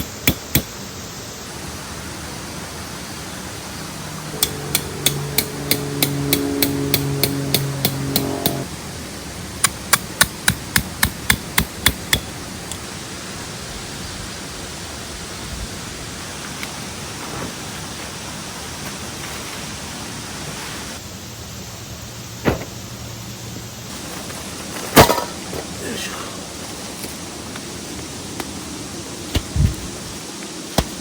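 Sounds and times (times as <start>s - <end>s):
hammer striking metal tent peg: 0.0s - 0.7s, 4.4s - 8.7s, 9.6s - 12.3s
outdoor hiss: 0.0s - 7.1s, 8.6s - 31.0s.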